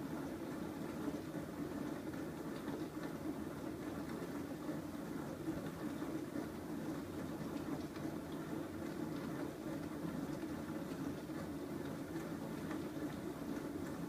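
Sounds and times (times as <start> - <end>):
dishwasher pump hum: 0.0 - 14.0.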